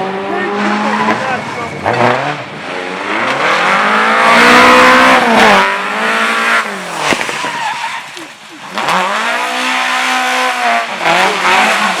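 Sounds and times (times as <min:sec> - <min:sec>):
race car engine revving: 0:00.0 - 0:12.0.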